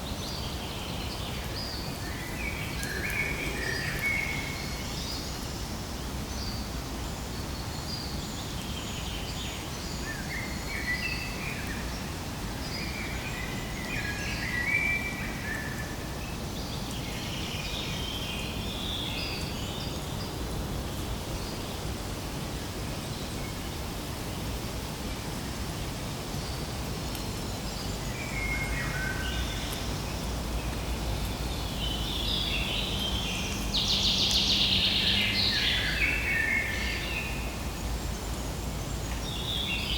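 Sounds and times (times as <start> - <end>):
birds chirping: 0.0 - 5.7.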